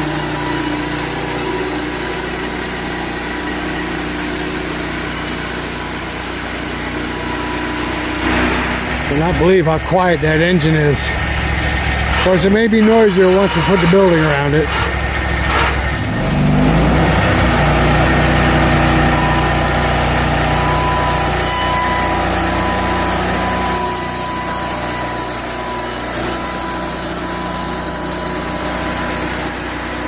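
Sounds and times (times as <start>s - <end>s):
thin steady whine: 0.0s - 16.4s
sawmill gas engine running: 0.0s - 30.0s.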